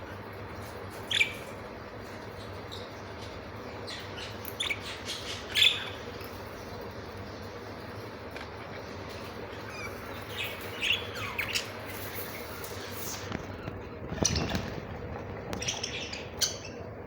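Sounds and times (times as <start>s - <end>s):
budgerigars chirping: 2.3s - 6.4s, 8.8s - 13.3s.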